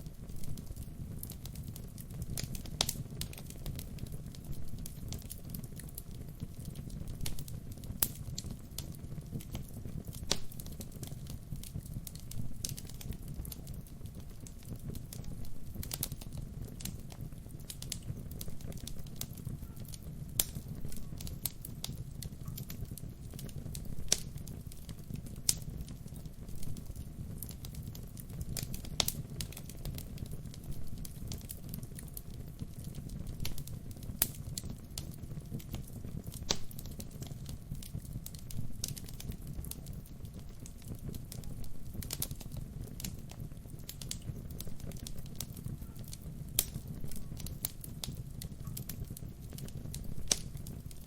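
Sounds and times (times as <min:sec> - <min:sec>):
burning logs crackling and popping: 0:00.0 - 0:51.0
fire rumbling: 0:00.0 - 0:51.0.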